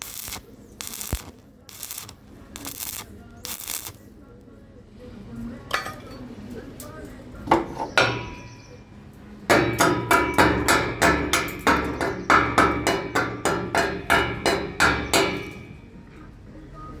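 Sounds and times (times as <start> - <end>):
hammer striking metal: 7.6 - 8.6, 9.5 - 15.8.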